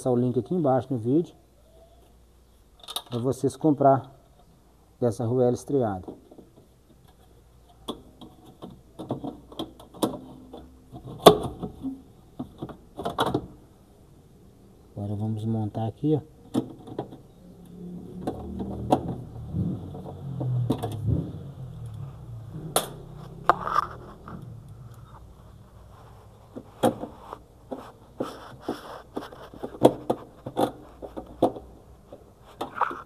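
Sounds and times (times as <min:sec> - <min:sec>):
tools and parts clicking and knocking: 0:02.8 - 0:03.3, 0:06.0 - 0:13.5, 0:16.5 - 0:17.3, 0:28.7 - 0:33.0.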